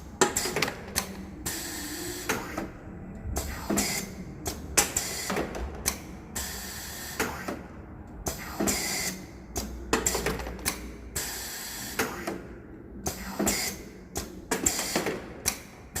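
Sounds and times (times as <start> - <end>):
low steady hum: 0.0 - 6.4
machine clicking and clacking: 0.2 - 1.6, 3.4 - 6.5, 8.3 - 11.3, 11.9 - 16.0.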